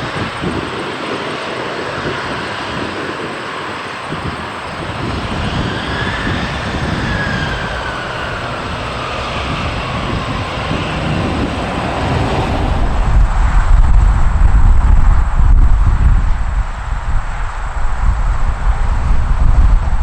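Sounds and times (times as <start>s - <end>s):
jet airliner passing: 0.0s - 20.0s
low rumble: 5.0s - 20.0s.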